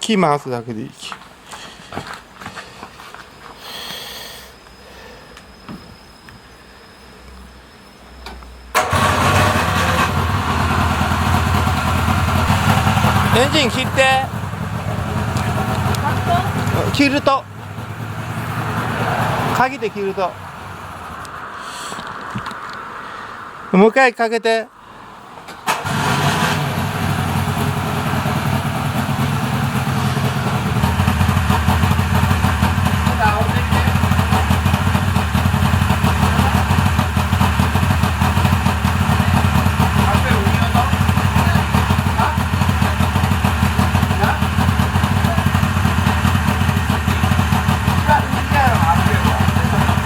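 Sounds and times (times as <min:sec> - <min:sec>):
two-stroke engine starting: 0:08.7 - 0:20.3, 0:25.6 - 0:50.0.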